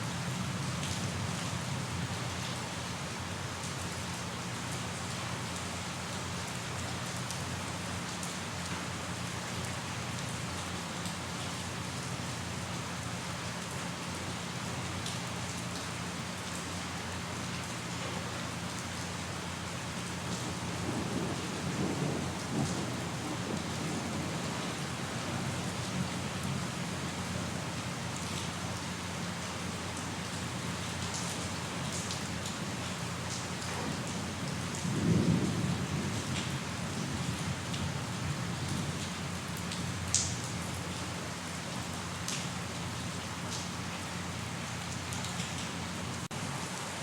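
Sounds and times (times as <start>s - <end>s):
steady rain falling: 0.0s - 47.0s
thunder rumbling: 20.3s - 26.7s, 34.7s - 38.1s.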